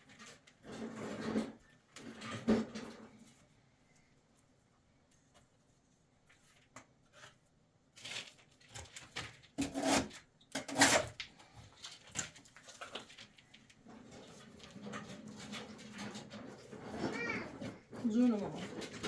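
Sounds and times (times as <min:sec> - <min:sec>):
knocks and clatters: 0:13.8 - 0:19.0.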